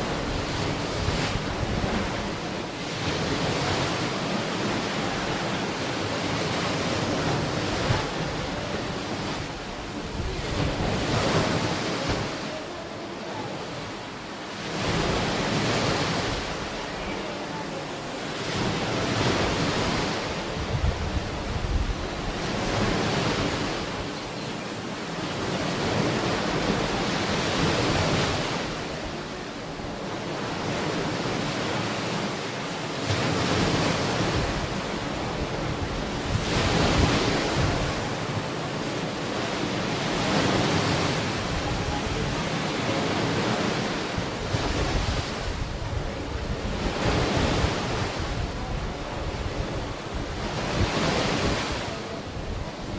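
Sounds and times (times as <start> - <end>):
wind on microphone: 0.0 - 12.6, 18.5 - 24.2, 33.2 - 38.5, 40.0 - 52.9
ocean waves breaking: 0.0 - 52.9.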